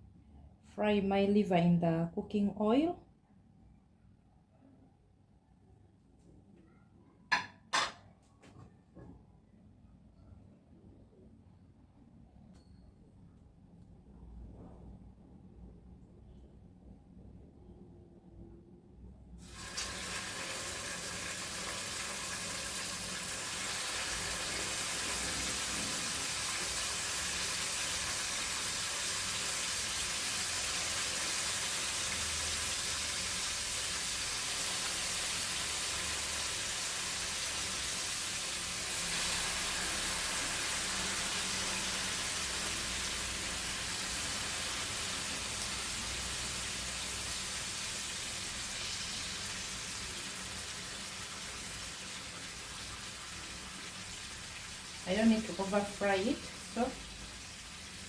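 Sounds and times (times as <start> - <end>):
liver sizzling in hot oil: 19.4 - 58.0.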